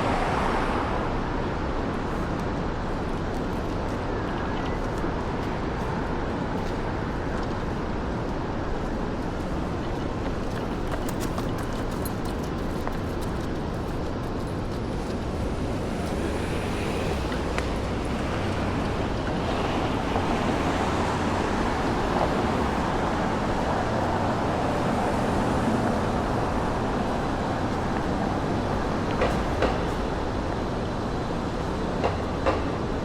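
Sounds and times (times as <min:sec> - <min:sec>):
hum of passing cars: 0:00.0 - 0:04.4, 0:05.0 - 0:33.0.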